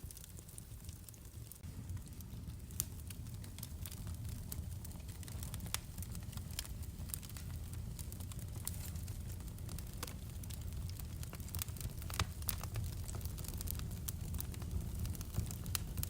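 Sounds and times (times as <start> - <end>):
rumble of fire flames: 0.0 - 16.0
wood fire crackling and popping: 0.0 - 16.0.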